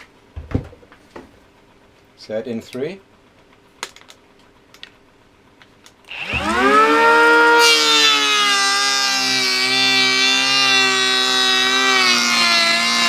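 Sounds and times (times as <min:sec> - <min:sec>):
planer blades cutting wood: 0:06.1 - 0:13.0
planer motor whine: 0:06.1 - 0:13.0.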